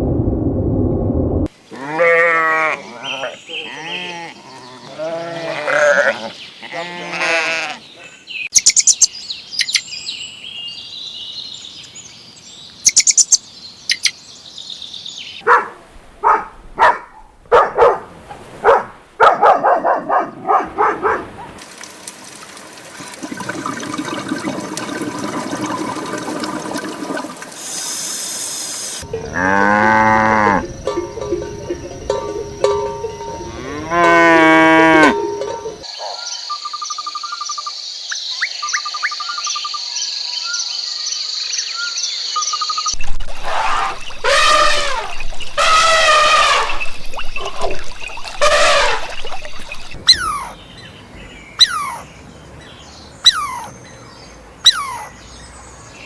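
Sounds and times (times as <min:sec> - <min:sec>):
cow mooing: 0:01.7 - 0:07.8, 0:29.0 - 0:35.8
high steady tone: 0:30.5 - 0:35.8
short repeated animal calls: 0:43.3 - 0:50.6.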